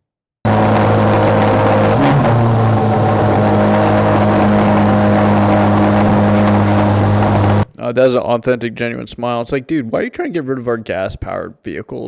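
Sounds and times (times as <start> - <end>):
car engine revving high: 0.5 - 7.7.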